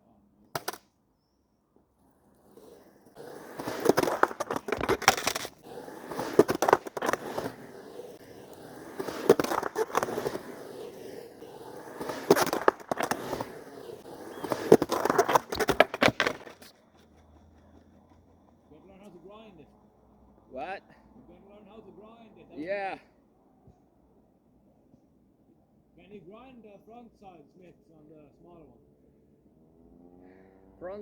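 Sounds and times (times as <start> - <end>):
skateboard rolling: 0.6 - 0.8, 2.0 - 19.2
skateboard clacking: 0.6 - 0.9, 2.4 - 18.8
skateboard scraping: 2.0 - 19.3.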